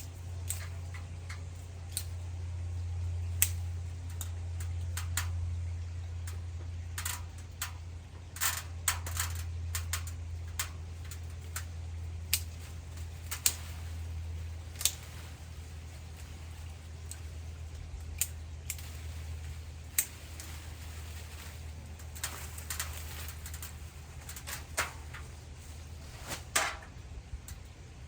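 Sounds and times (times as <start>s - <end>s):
steady low hum: 0.0s - 28.0s
pruning shears snipping: 0.4s - 2.2s, 3.4s - 5.2s, 12.3s - 25.3s.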